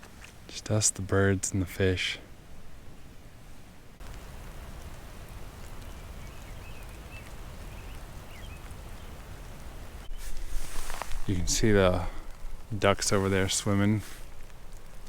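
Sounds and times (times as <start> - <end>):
steady hiss: 0.0 - 15.0
faint bird chirps: 5.0 - 10.4.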